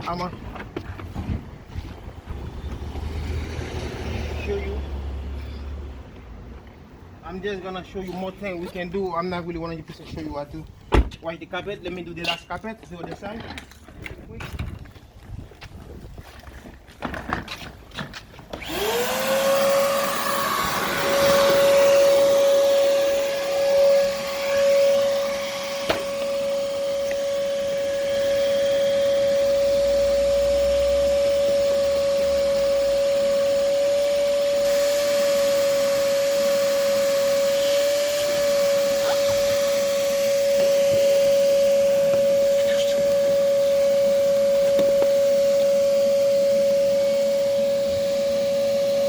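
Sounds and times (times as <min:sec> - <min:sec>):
vacuum cleaner motor whining: 0:18.5 - 0:49.0.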